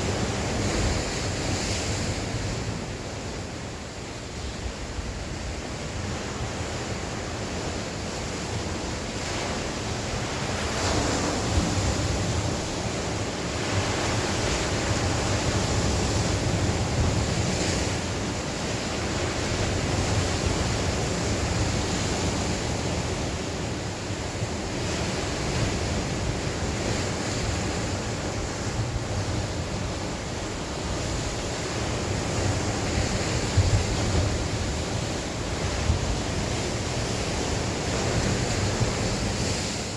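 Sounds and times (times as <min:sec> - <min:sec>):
sea waves breaking on shore: 0:00.0 - 0:39.9
wind buffeting microphone: 0:25.0 - 0:39.9.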